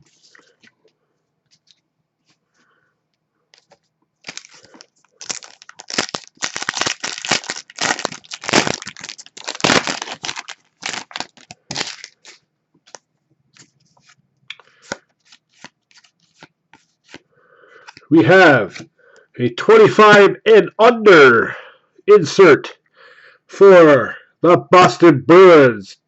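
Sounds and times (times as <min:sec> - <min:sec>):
wrapper crinkling and tearing: 0:03.6 - 0:13.0
cards clicking and rustling: 0:03.6 - 0:17.2, 0:17.8 - 0:18.1, 0:18.7 - 0:18.9.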